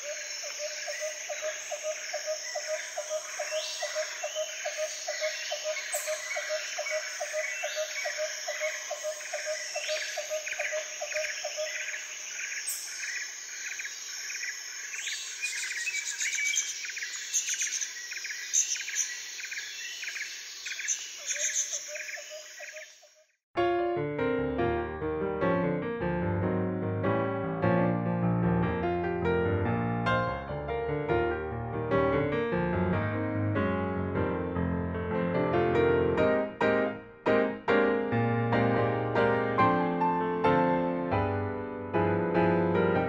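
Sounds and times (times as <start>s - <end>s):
bird chirps: 0.0s - 23.2s
high insect trill: 0.0s - 23.2s.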